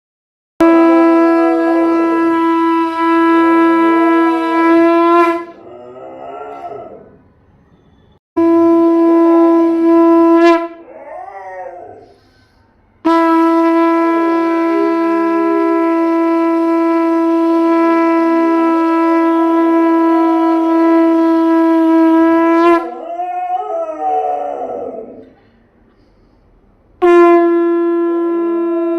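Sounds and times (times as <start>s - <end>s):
conch shell blasts: 0.6s - 5.6s, 7.9s - 10.8s, 13.0s - 23.0s, 27.0s - 28.9s
dog howling: 5.5s - 7.2s, 10.8s - 12.2s, 22.7s - 25.4s.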